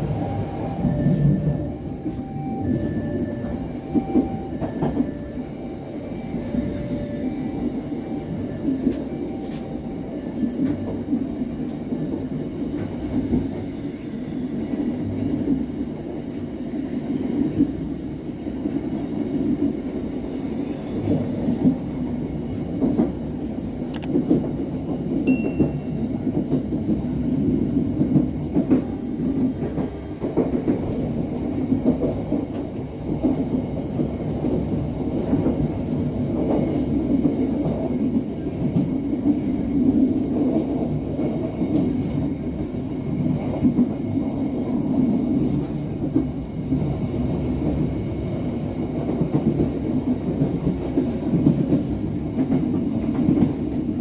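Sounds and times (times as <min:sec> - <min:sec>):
train wheels rumbling on rails: 0:00.0 - 0:54.0
clickety-clack of wheels: 0:00.6 - 0:05.4, 0:10.4 - 0:13.8, 0:21.0 - 0:54.0.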